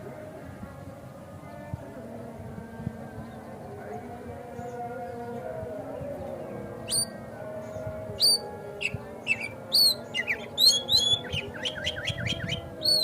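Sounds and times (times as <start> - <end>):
bird singing whistled notes: 6.8 - 7.2, 8.2 - 13.0.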